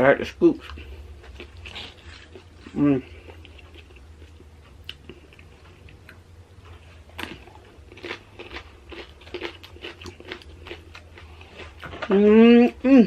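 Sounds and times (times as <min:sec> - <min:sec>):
crunching tortilla chips: 0:07.2 - 0:12.7.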